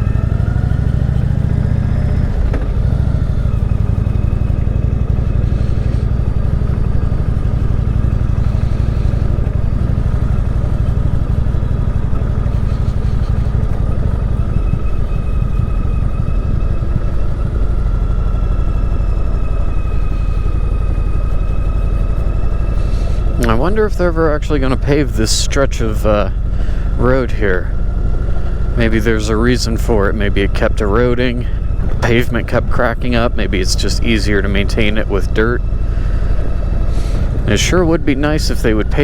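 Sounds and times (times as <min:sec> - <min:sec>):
faint steady whine: 0:00.0 - 0:39.0
motorcycle engine running: 0:00.0 - 0:39.0.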